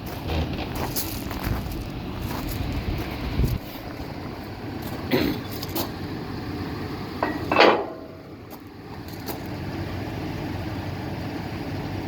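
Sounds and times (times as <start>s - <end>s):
vehicle engine running: 0.0s - 12.0s
metal clanking: 7.2s - 8.4s.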